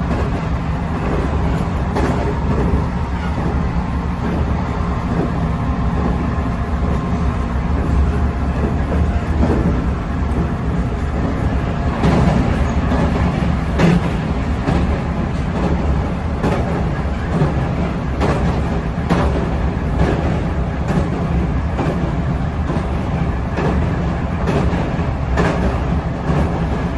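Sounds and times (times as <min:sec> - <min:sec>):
train wheels rumbling: 0:00.0 - 0:26.9
wheels clacking over rail joints: 0:00.0 - 0:26.9.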